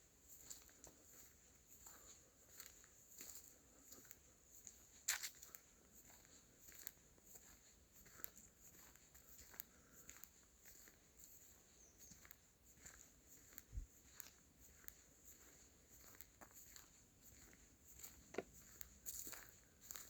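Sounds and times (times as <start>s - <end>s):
footsteps on crackling leaves: 5.0s - 5.6s, 15.9s - 20.0s.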